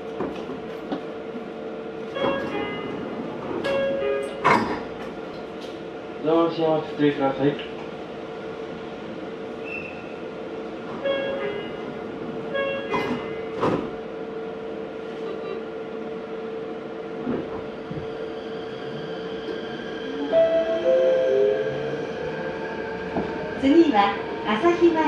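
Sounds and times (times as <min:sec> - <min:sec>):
rail noise: 0:00.0 - 0:25.0.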